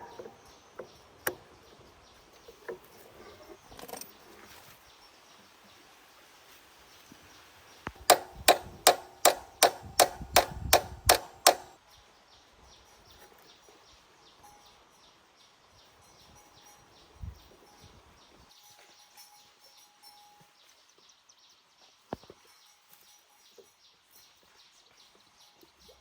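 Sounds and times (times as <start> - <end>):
hammer blows on metal: 8.1 - 11.8.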